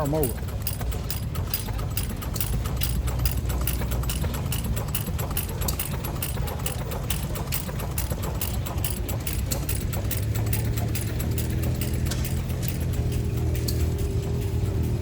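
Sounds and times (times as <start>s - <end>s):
rapid even clicking: 0.0s - 15.0s
stationary engines humming: 0.0s - 15.0s.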